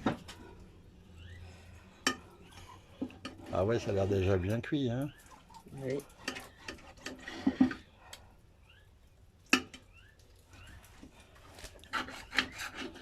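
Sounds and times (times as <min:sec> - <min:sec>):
knife cutting and scraping: 0:06.1 - 0:07.8, 0:11.5 - 0:13.0.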